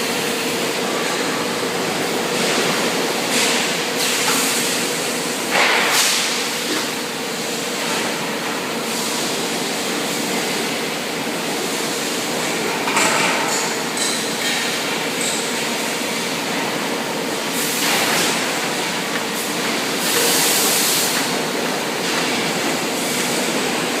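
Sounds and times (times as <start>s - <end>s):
coating machine running: 0.0s - 24.0s.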